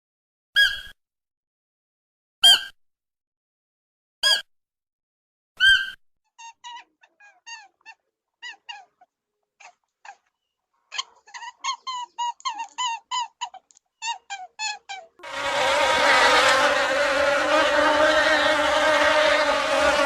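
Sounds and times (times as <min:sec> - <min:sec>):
small animal squeaky calls: 0:00.6 - 0:00.9, 0:04.2 - 0:04.4, 0:05.6 - 0:15.2.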